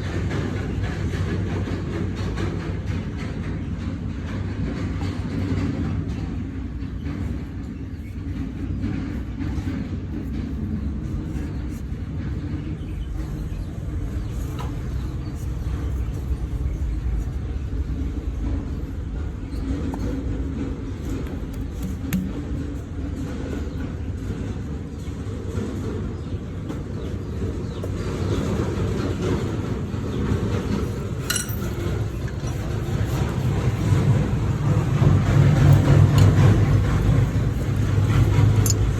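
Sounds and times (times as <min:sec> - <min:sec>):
low mechanical engine rumble: 0:00.0 - 0:38.9
tractor diesel engine rumbling: 0:26.9 - 0:38.9
sharp metallic clink: 0:31.2 - 0:32.5.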